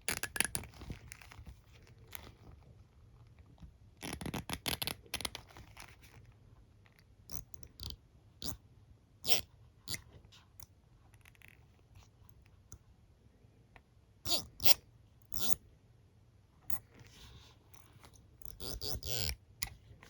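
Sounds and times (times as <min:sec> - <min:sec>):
soft scratching: 0:16.8 - 0:20.0.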